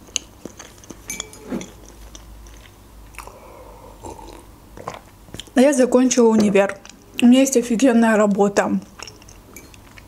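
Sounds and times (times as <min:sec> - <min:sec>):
person chewing with wet smacks: 0:04.1 - 0:05.6, 0:09.7 - 0:10.0.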